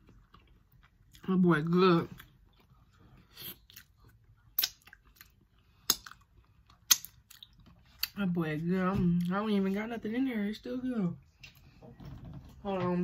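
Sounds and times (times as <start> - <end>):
person chewing shrimp: 0.0 - 1.2, 2.1 - 8.2.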